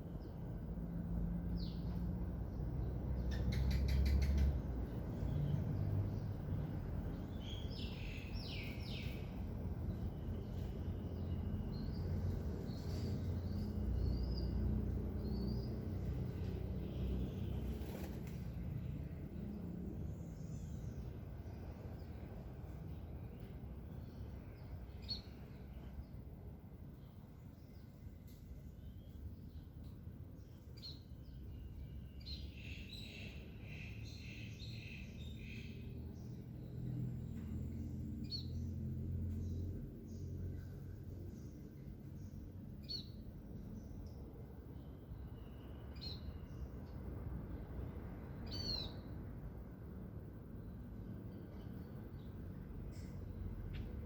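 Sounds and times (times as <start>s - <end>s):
birds chirping: 1.5s - 22.1s.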